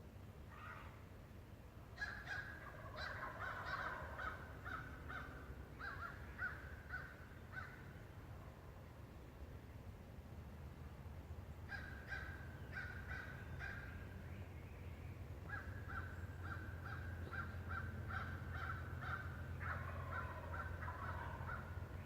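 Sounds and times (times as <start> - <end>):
birds calling harsh notes: 11.7 - 14.0, 15.5 - 22.0.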